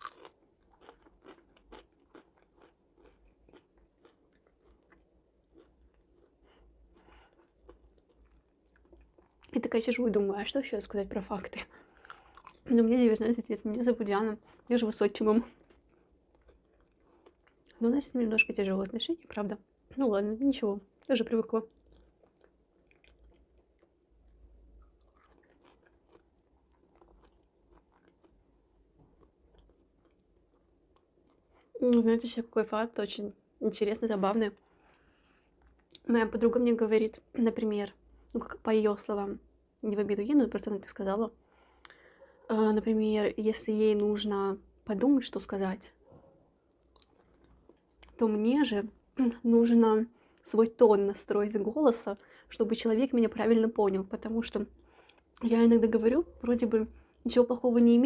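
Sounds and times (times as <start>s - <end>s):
chewing crunchy fries: 0.0s - 9.7s, 11.6s - 12.8s, 14.3s - 17.9s, 21.0s - 31.8s, 46.8s - 48.2s.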